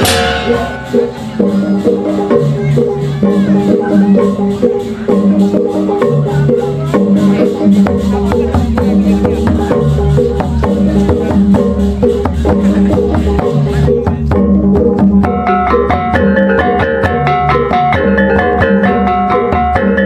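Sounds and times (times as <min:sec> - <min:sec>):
high ringing tones: 0:00.0 - 0:01.3
tuned metal percussion strikes: 0:00.0 - 0:02.6
drums: 0:00.0 - 0:20.0.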